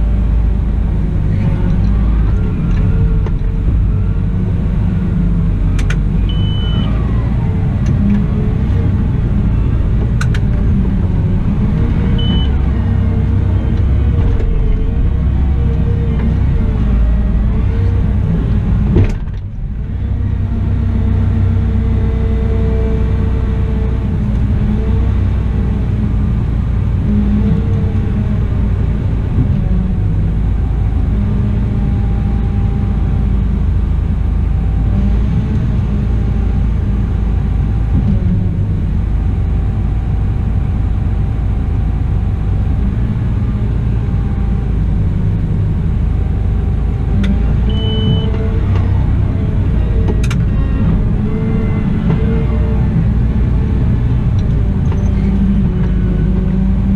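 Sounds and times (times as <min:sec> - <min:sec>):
wheel loader diesel engine rumbling: 0:00.0 - 0:56.9.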